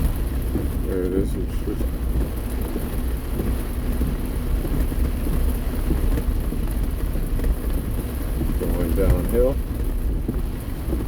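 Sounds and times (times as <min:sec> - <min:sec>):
car road noise: 0:00.0 - 0:11.0
rain: 0:00.0 - 0:11.0.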